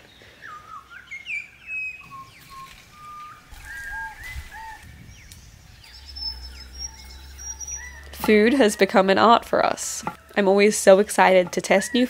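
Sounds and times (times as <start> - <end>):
birds calling and singing: 0.0 - 12.0
low rumble: 2.5 - 10.1.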